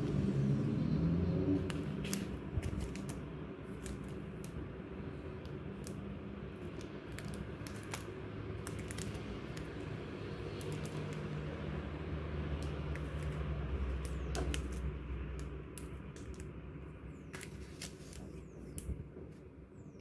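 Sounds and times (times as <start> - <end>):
low background hum: 0.0 - 20.0
stationery items clicking and tapping: 6.6 - 9.8, 10.4 - 11.3, 12.5 - 16.5.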